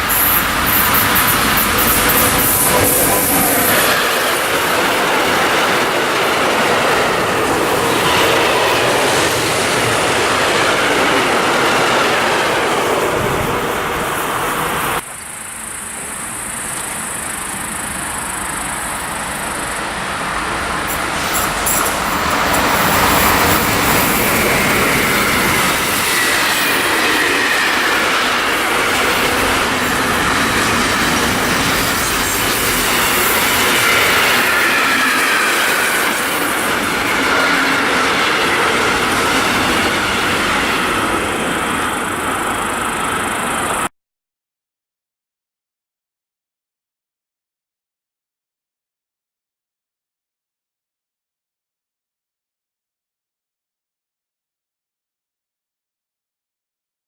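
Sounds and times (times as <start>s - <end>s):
train rumble: 0.0s - 15.1s, 15.7s - 43.9s.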